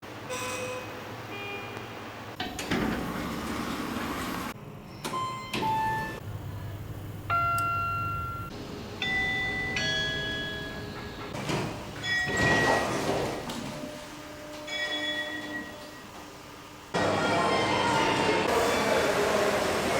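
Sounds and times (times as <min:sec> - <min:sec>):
elevator chimes and beeps: 0:00.3 - 0:03.0, 0:03.6 - 0:06.2, 0:07.3 - 0:13.8, 0:14.4 - 0:16.2
lift doors rumbling and clunking: 0:02.3 - 0:15.8.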